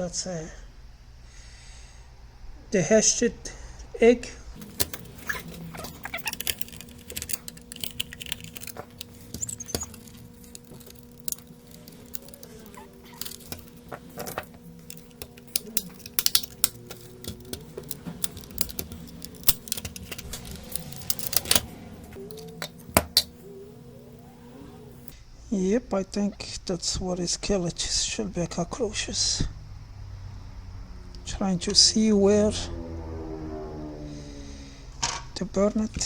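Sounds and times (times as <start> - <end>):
low electrical hum: 0.0 - 29.4
clicks and taps of tools: 4.6 - 21.6.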